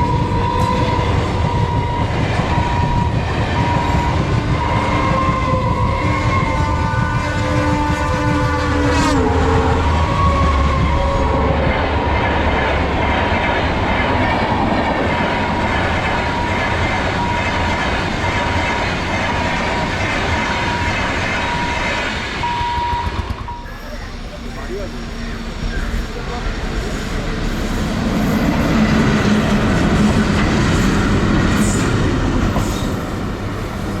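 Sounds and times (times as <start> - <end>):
locomotive horn: 0.0 - 11.6
train wheels clattering on track: 0.0 - 34.0.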